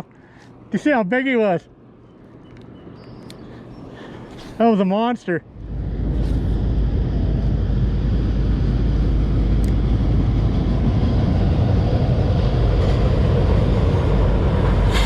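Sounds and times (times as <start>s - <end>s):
wind buffeting microphone: 5.5s - 15.0s.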